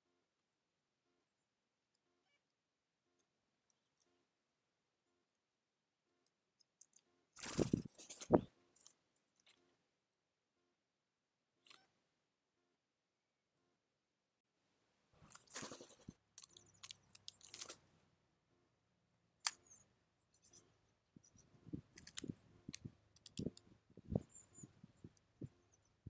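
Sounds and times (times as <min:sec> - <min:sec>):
small animals cracking seeds: 0:15.2 - 0:17.9, 0:19.4 - 0:19.8, 0:21.9 - 0:23.7
faint high bird chirps: 0:19.6 - 0:21.8, 0:24.0 - 0:26.0.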